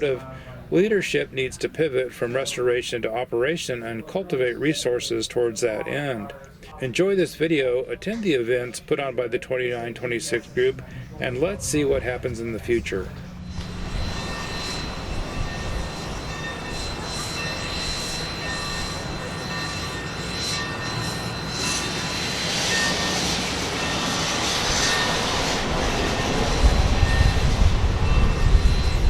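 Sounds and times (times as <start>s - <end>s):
train rumbling on track: 10.4s - 29.0s.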